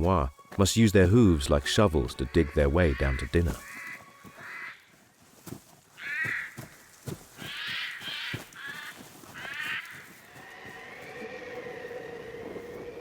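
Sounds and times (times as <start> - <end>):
crow cawing: 2.4 - 4.9, 5.9 - 11.0.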